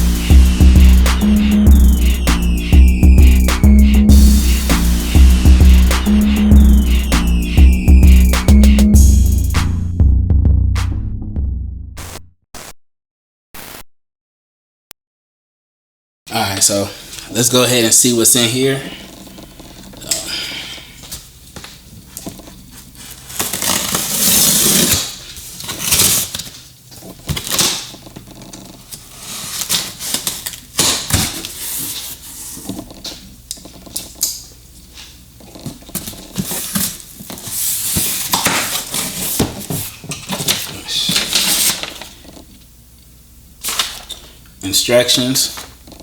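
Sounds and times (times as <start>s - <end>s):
packaging rustling and crinkling: 21.2s - 33.0s, 35.5s - 42.6s.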